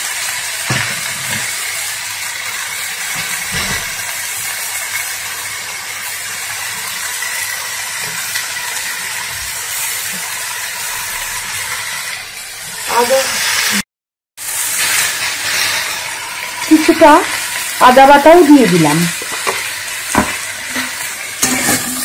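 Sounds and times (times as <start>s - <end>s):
vegetables sizzling in hot oil: 0.0s - 13.8s, 14.4s - 22.0s.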